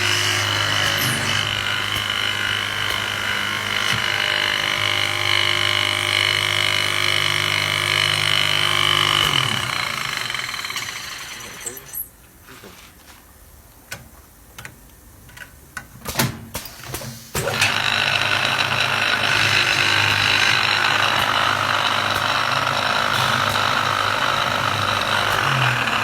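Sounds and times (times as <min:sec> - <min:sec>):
wood-turning lathe humming: 0:00.0 - 0:12.0, 0:17.6 - 0:26.0.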